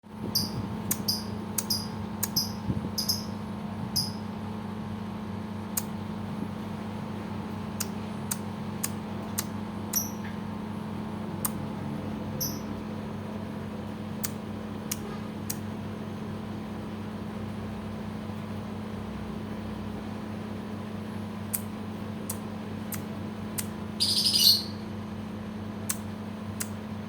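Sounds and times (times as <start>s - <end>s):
steady low hum: 0.0s - 27.0s
bird clicking ticks and chirps: 0.3s - 3.4s, 4.0s - 4.2s, 7.8s - 10.3s, 12.4s - 12.7s.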